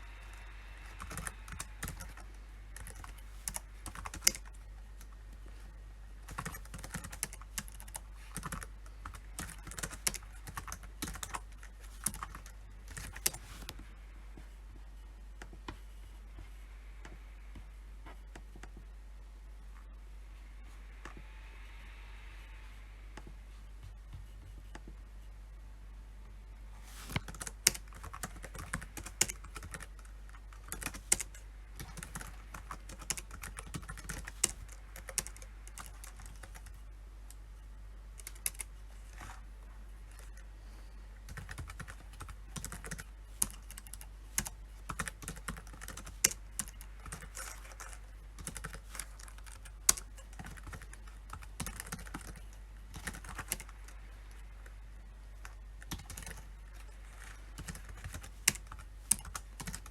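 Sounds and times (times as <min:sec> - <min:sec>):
keyboard typing: 0:00.2 - 0:05.5, 0:06.2 - 0:13.8, 0:27.1 - 0:37.4, 0:38.2 - 0:39.4, 0:41.2 - 0:54.8, 0:55.4 - 0:59.9.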